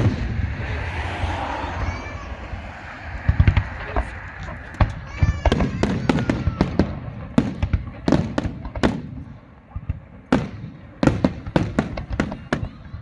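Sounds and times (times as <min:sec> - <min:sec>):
firework shells bursting: 0:02.8 - 0:13.0.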